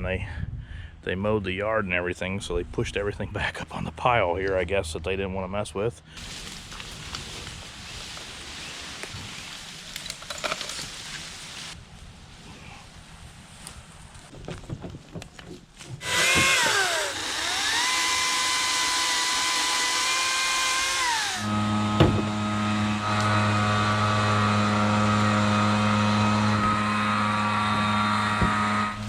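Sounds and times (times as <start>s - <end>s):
low mechanical hum: 10.8s - 29.0s
chainsaw motor whining: 15.9s - 29.0s.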